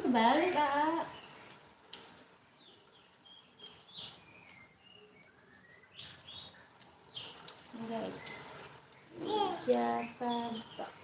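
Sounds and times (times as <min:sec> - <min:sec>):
faint bird chirps: 0:02.5 - 0:11.0.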